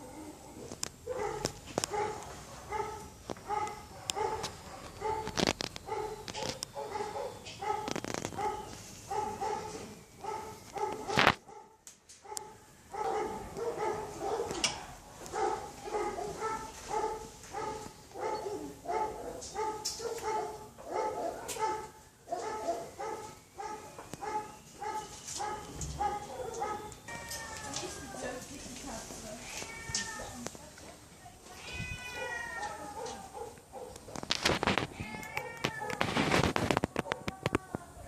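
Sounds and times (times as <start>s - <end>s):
dog barking: 0.0s - 14.6s, 15.3s - 26.9s, 32.2s - 34.1s, 37.0s - 37.3s.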